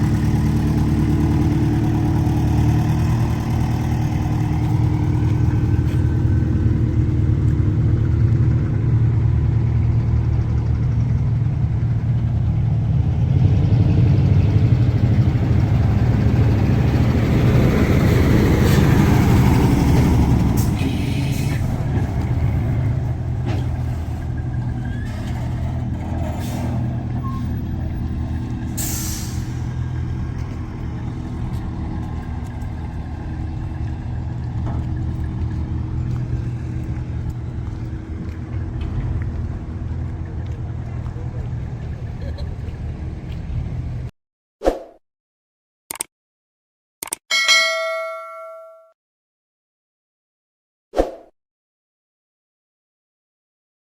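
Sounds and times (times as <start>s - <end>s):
harvester diesel engine running: 0.0s - 44.1s.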